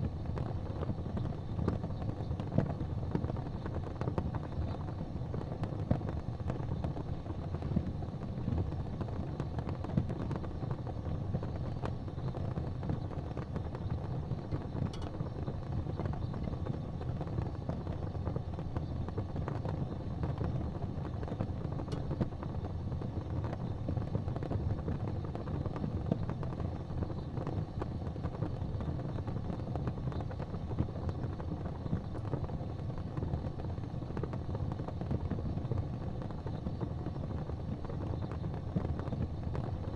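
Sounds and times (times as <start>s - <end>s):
fire crackling: 0.0s - 39.9s
fire flames rumbling: 0.0s - 39.9s.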